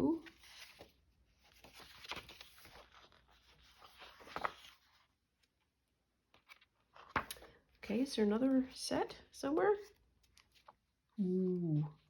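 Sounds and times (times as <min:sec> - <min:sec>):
paper rustling and sliding: 0:00.3 - 0:05.1.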